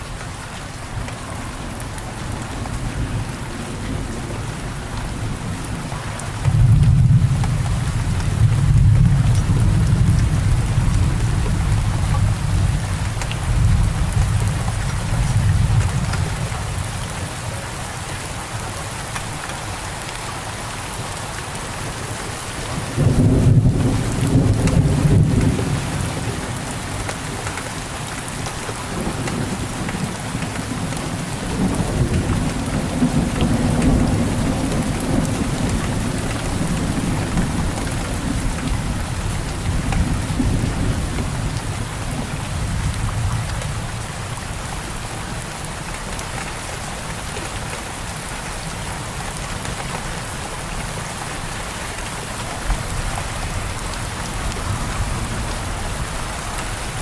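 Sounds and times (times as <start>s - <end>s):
steady rain falling: 0.0s - 57.0s
rolling thunder: 6.5s - 16.8s, 22.9s - 26.8s.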